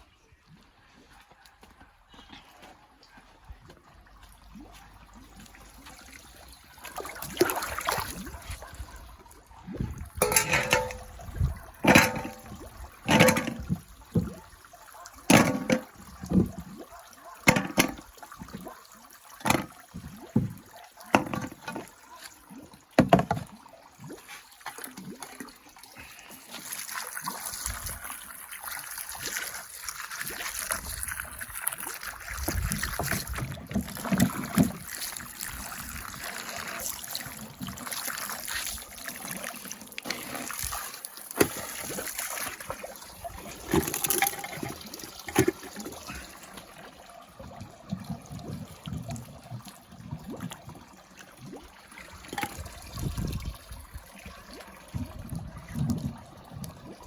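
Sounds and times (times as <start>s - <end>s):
water trickling and sloshing: 0.0s - 57.0s
objects clicking and knocking in water: 9.7s - 14.4s, 15.0s - 18.7s, 19.4s - 22.3s, 23.0s - 25.2s, 30.2s - 46.7s, 51.4s - 53.5s.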